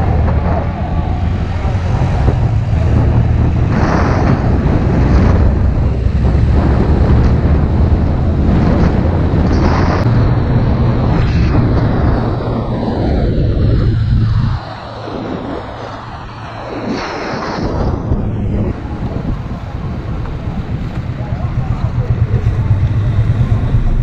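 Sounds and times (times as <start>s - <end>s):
vehicles passing: 0.0s - 17.0s, 17.8s - 24.0s
wind on microphone: 0.0s - 24.0s
motorcycle engine running: 19.0s - 24.0s.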